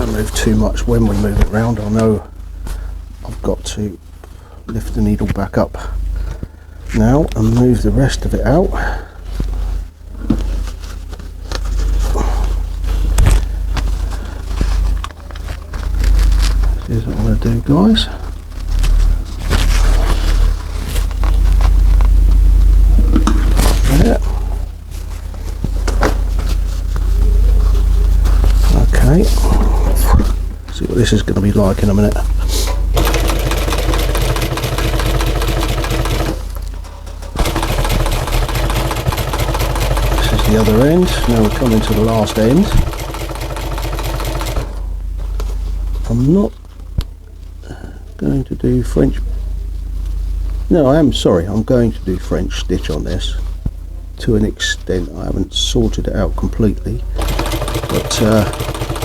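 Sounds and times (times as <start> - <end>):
steady low hum: 0.0 - 59.0
fabric rustling: 18.2 - 22.3
sewing machine stitching: 32.9 - 36.7, 37.3 - 44.8, 57.2 - 59.0.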